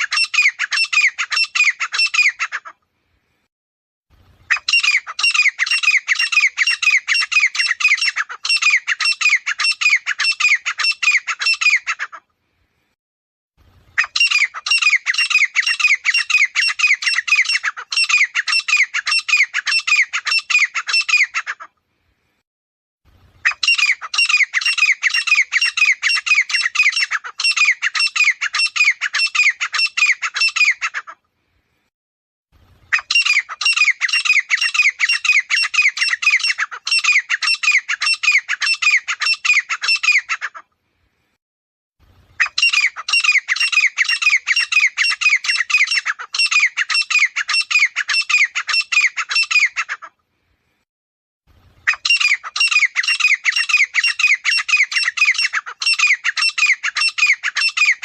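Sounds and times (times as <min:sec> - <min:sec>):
francolin calling: 0:51.9 - 0:58.0.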